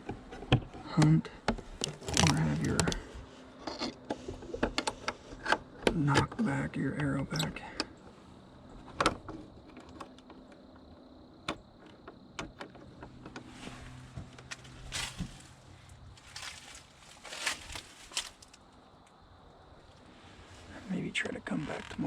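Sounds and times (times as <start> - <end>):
gear clicks and knocks: 0.0 - 8.0, 8.7 - 15.5, 16.2 - 18.6.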